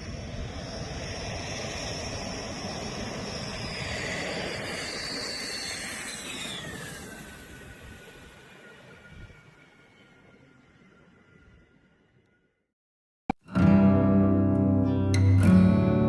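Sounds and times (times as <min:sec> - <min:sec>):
fighter jet roar: 0:00.0 - 0:10.4
high jet whine falling in pitch: 0:00.0 - 0:11.9.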